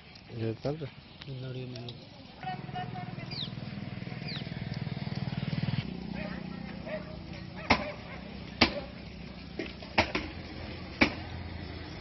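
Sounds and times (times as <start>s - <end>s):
sharp knocks: 7.7s - 7.9s, 8.6s - 8.9s, 9.6s - 10.4s, 11.0s - 11.2s.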